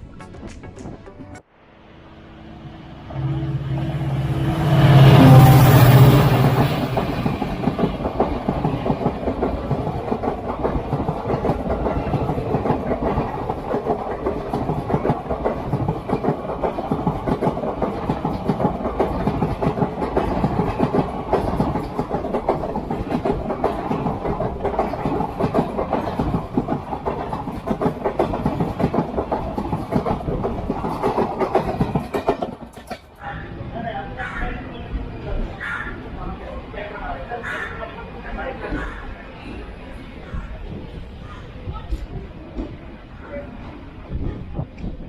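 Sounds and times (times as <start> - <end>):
train wheels clacking on rails: 3.2 - 33.2.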